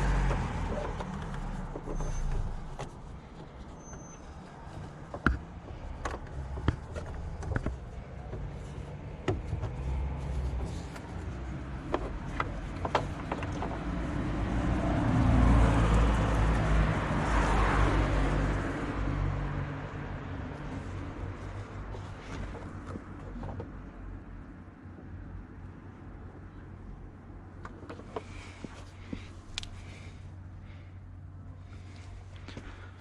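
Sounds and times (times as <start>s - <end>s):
car passing: 0.0s - 3.6s, 5.7s - 22.8s
sharp clicks and knocks: 0.0s - 14.2s.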